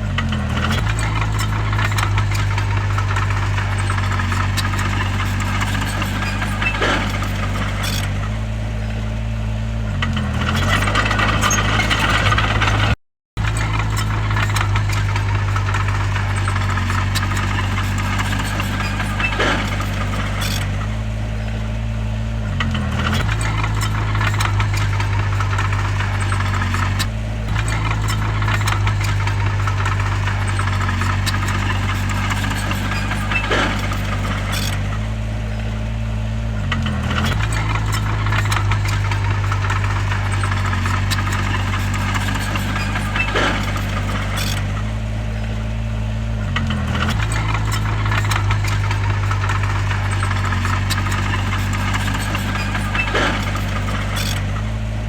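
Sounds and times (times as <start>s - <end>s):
bulldozer diesel engine running: 0.0s - 55.0s
metallic clanks and rattles: 0.0s - 55.0s.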